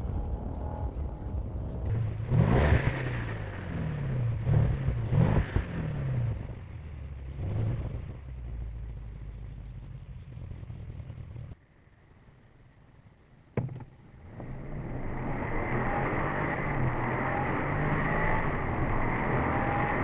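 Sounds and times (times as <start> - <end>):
car engine revving and idling: 0.6 - 11.6, 14.2 - 20.0.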